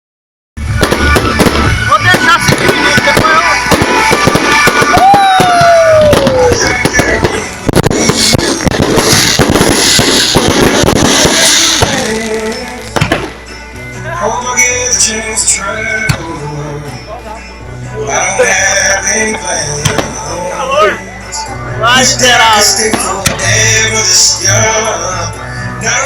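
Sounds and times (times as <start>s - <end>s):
bonfire crackling and popping: 0.8s - 13.5s.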